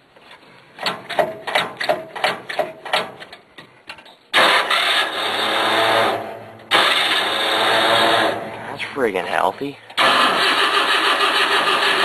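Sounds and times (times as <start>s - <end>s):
starter motor cranking: 4.4s - 8.4s, 10.0s - 12.0s
engine running loud: 4.4s - 8.6s.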